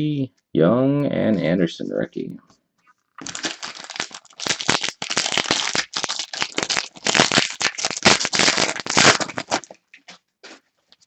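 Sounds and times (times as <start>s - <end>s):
foil wrapper crinkling and tearing: 3.2s - 10.0s.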